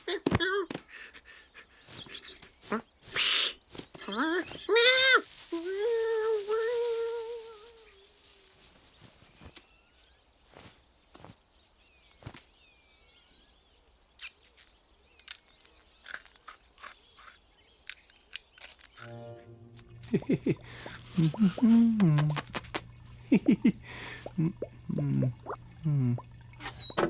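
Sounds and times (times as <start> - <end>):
faint chirps: 1.6 - 27.0.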